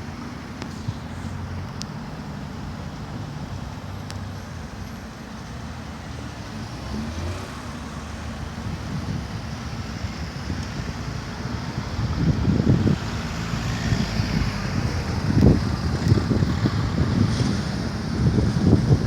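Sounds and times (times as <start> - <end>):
road noise hiss: 0.0 - 19.0.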